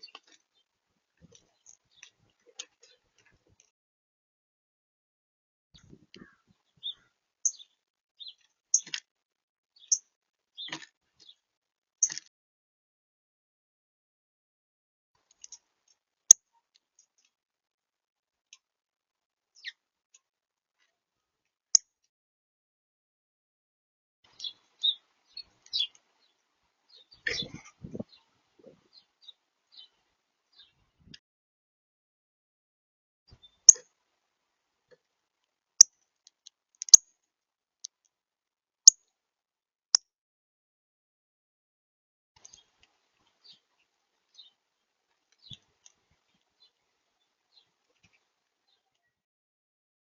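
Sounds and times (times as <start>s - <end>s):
bird chirp: 5.8s - 9.0s, 9.8s - 11.4s, 19.6s - 19.8s, 24.3s - 30.9s, 43.4s - 44.6s, 45.4s - 49.2s.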